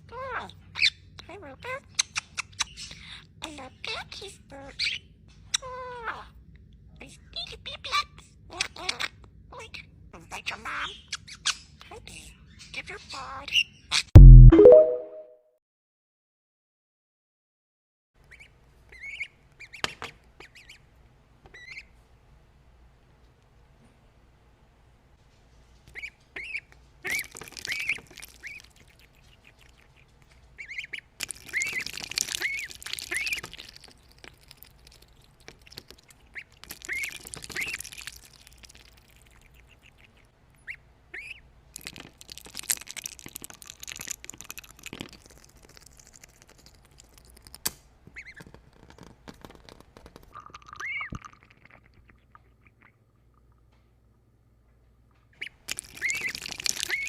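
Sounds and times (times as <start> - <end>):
bird calling: 55.4 - 57.0.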